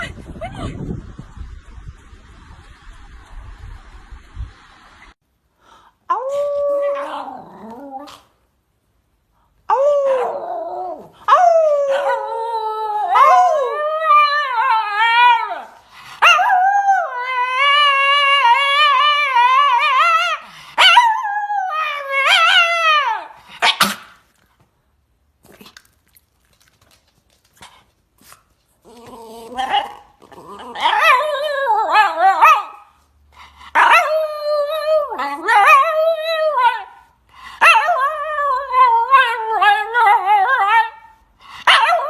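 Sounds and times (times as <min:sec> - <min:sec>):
dog howling: 0:09.7 - 0:23.3.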